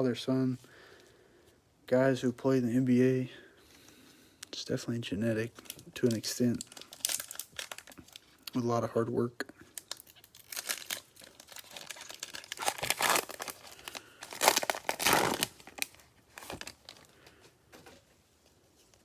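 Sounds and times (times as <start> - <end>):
wrapper tearing and crinkling: 5.6 - 8.5, 9.8 - 17.1.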